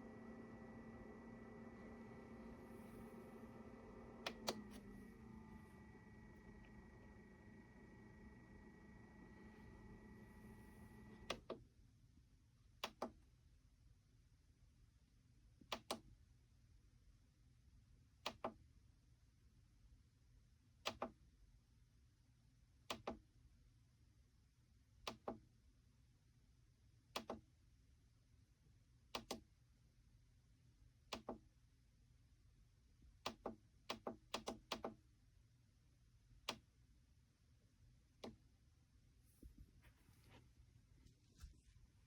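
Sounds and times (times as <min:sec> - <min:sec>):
low hum: 0:00.0 - 0:11.5.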